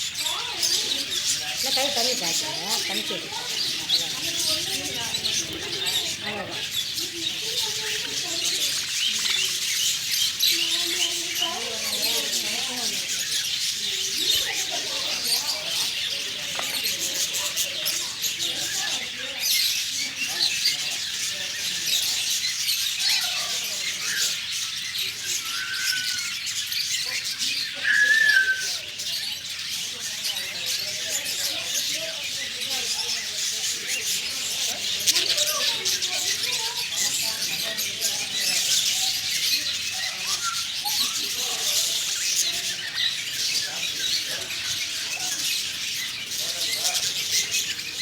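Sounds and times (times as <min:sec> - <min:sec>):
parrots chattering and chirping: 0:00.0 - 0:48.0
parrot whistle: 0:27.8 - 0:28.8.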